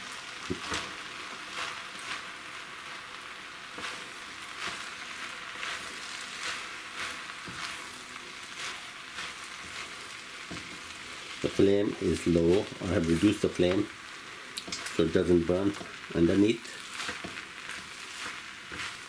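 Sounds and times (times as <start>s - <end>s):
food sizzling in a wok: 0.0s - 19.0s
spatula scraping a wok: 0.6s - 19.0s.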